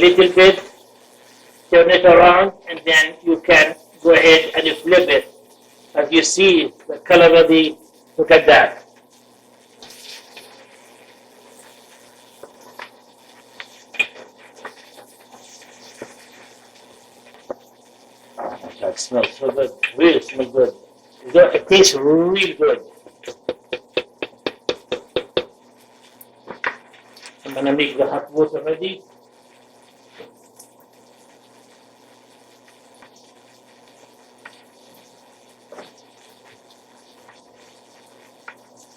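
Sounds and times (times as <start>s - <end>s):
chicken sizzling in hot oil: 0.0s - 38.9s.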